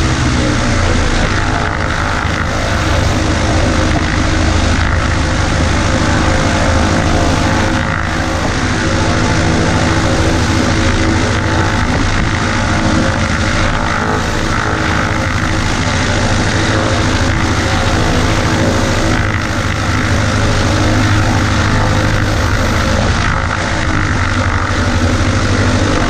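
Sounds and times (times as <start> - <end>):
light aircraft engine droning: 0.0 - 26.0
wind noise: 0.0 - 26.0.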